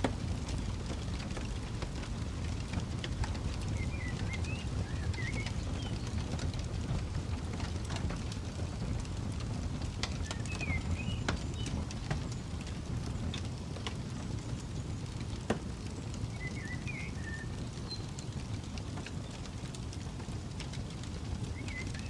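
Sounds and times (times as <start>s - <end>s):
campfire crackling and popping: 0.0s - 22.0s
low steady rumble: 0.0s - 22.0s.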